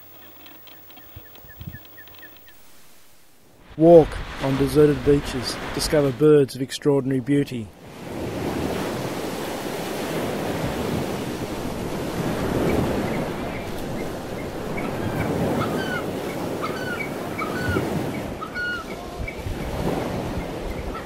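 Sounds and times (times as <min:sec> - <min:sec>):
surf washing on beach: 0:00.0 - 0:06.5, 0:07.7 - 0:21.0
short high bird chirps: 0:00.1 - 0:02.7.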